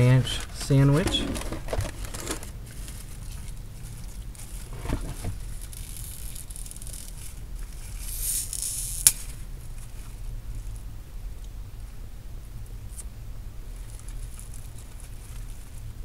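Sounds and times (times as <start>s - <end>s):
paper rustling: 0.0s - 6.2s
faint crunching: 0.0s - 8.1s.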